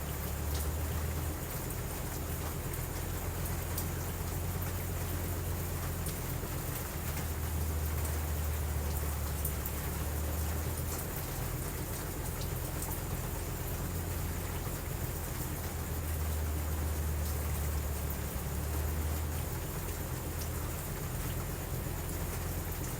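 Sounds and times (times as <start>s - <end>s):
steady rain falling: 0.0s - 22.9s.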